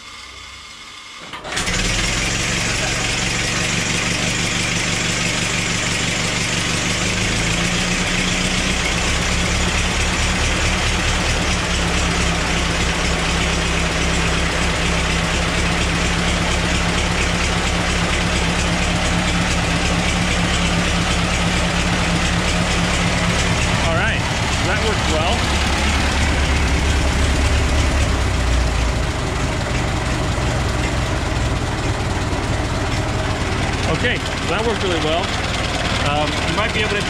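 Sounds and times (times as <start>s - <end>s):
car engine idling: 1.5s - 37.0s.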